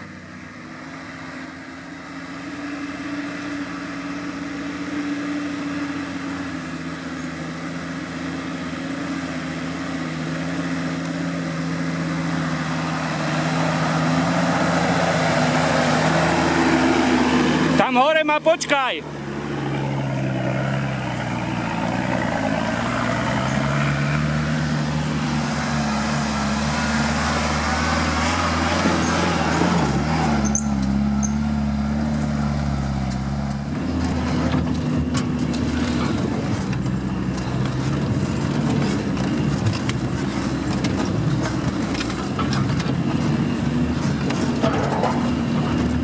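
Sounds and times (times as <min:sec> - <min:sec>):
vehicle engine revving: 0:00.0 - 0:17.9, 0:18.5 - 0:46.0
knocks and rattles: 0:44.1 - 0:46.0.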